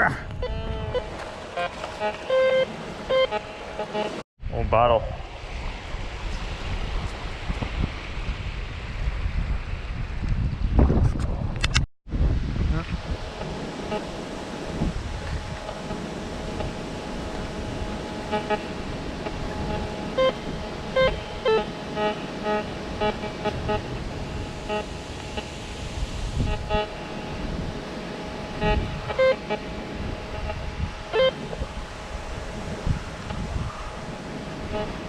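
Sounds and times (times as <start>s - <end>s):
wind noise: 0.0s - 35.0s
metal detector beeps: 0.4s - 4.1s, 19.3s - 25.5s.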